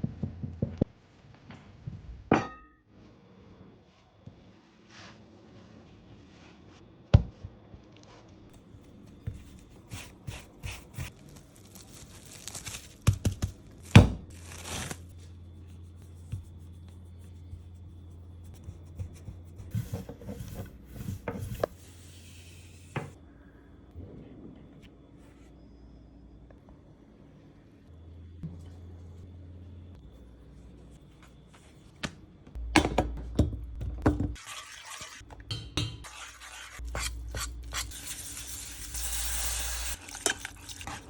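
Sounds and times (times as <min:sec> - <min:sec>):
rustling and crinkling: 0:07.9 - 0:15.4
steady low hum: 0:13.4 - 0:34.3.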